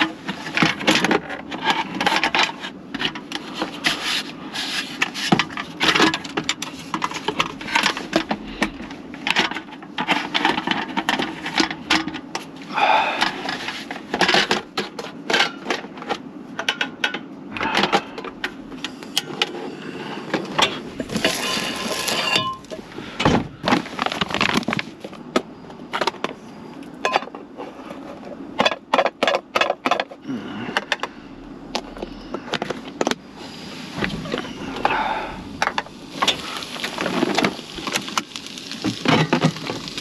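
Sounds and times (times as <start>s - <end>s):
objects clicking and clattering: 0.0s - 4.1s, 4.8s - 19.6s, 20.3s - 31.1s, 35.6s - 40.0s.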